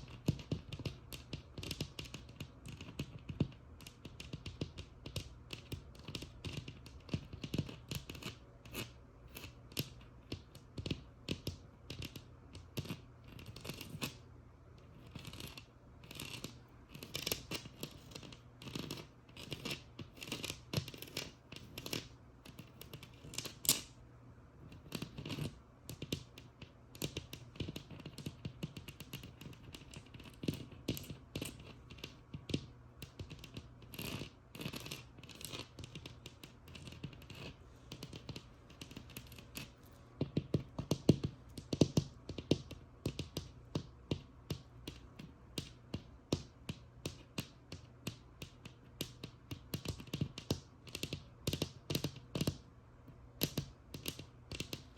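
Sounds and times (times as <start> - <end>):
rasping scratches on a wall: 0.0 - 11.4, 12.0 - 14.2, 14.8 - 23.8, 24.7 - 52.6
tapping on a wall: 35.7 - 52.6.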